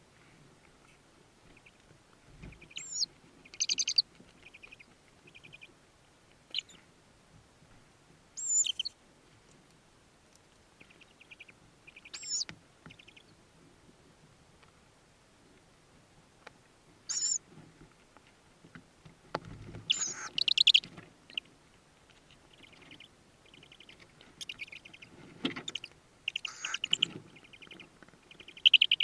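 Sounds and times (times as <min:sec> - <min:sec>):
owl chicks chittering: 0:02.4 - 0:05.7, 0:06.5 - 0:06.8, 0:08.4 - 0:08.9, 0:10.8 - 0:13.3, 0:17.1 - 0:17.4, 0:19.8 - 0:29.0
owl chicks squeaking: 0:02.5 - 0:05.7, 0:06.5 - 0:06.8, 0:08.4 - 0:08.9, 0:10.8 - 0:13.3, 0:17.1 - 0:17.4, 0:19.9 - 0:21.5, 0:22.2 - 0:29.0.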